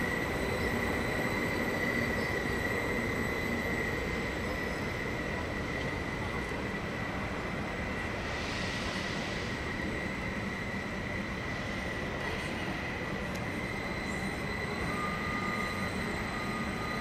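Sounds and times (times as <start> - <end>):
train running gear rumble: 0.0 - 17.0
high-pitched wheel squeal: 13.5 - 17.0.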